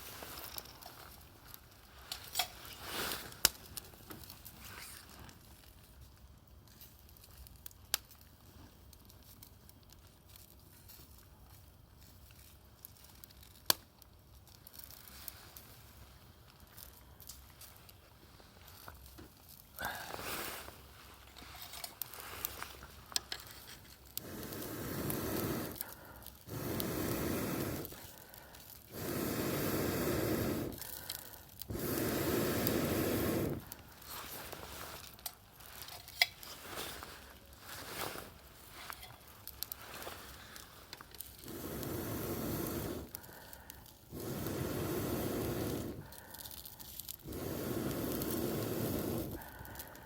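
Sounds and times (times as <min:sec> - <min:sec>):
campfire crackling and popping: 0:00.0 - 0:50.0
rushing air noise: 0:31.7 - 0:33.8, 0:44.2 - 0:46.1.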